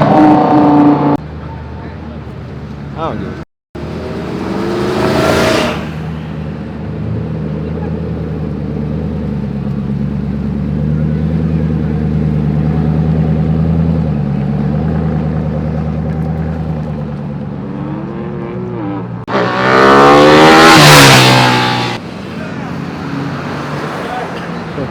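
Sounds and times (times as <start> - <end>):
loud engine revving: 3.8 - 7.3, 17.7 - 22.0
car engine running at low revs: 3.8 - 19.3.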